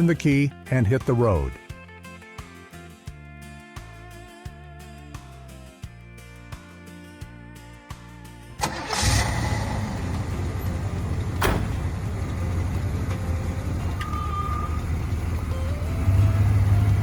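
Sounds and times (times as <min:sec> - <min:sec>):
car engine running: 0:08.6 - 0:17.0.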